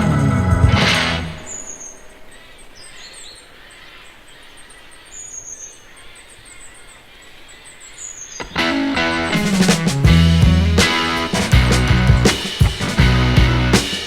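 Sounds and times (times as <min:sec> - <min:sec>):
loud music: 0:00.0 - 0:01.6, 0:08.6 - 0:14.0
high thin falling bird call: 0:00.0 - 0:05.9
rapid high bird chirping: 0:00.0 - 0:08.7.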